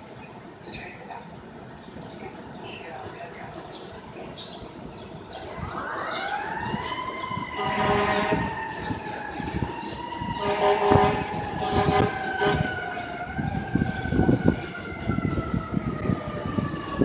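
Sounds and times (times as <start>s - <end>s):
fire engine siren wailing: 5.3s - 17.0s
air horn blasts: 7.5s - 8.6s, 10.4s - 13.0s.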